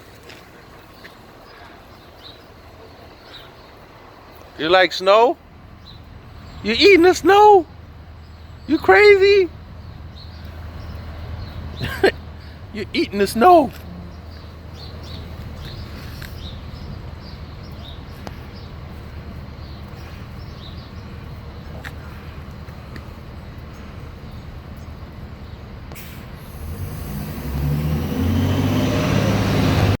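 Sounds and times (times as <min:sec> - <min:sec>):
engine: 0:13.4 - 0:30.0.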